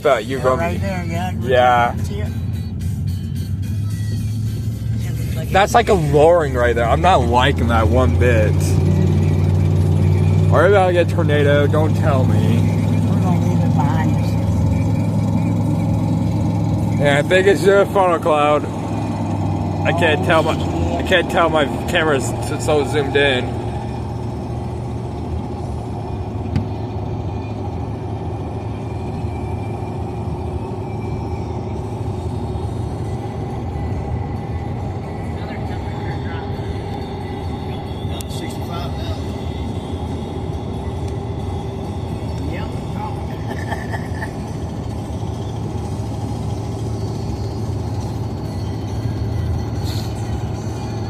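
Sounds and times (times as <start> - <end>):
car road and engine noise: 0.0 - 51.0.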